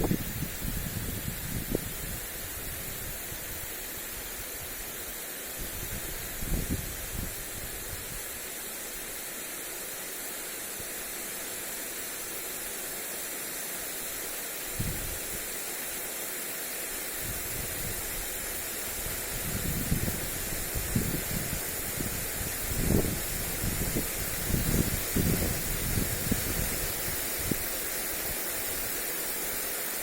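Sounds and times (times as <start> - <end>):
wind gusts on microphone: 0.0 - 3.7, 5.6 - 8.2, 14.8 - 15.3, 17.2 - 18.2, 18.9 - 27.7
sprinkler spraying water: 0.0 - 30.0.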